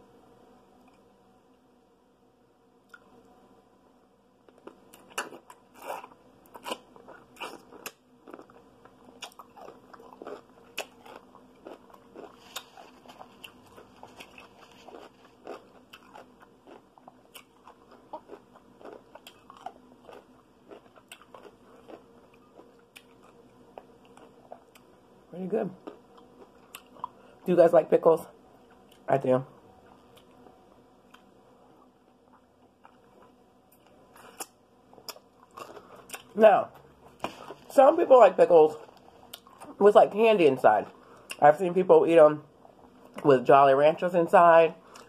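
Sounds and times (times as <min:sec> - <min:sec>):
pickle crunching: 0:04.5 - 0:24.9, 0:25.8 - 0:27.3, 0:32.3 - 0:36.4
person chewing: 0:04.5 - 0:25.0, 0:25.8 - 0:27.4, 0:32.3 - 0:37.7, 0:38.8 - 0:39.8.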